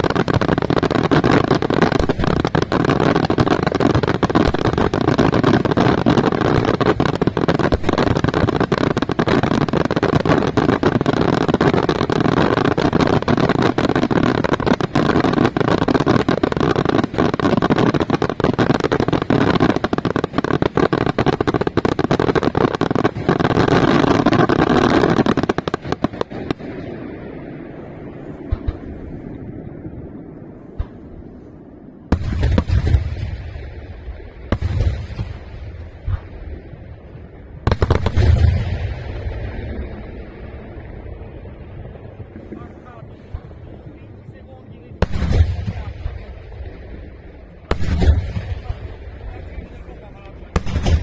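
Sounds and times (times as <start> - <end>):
fireworks bangs and booms: 0.0 - 51.0
low rumbling echo: 26.2 - 51.0.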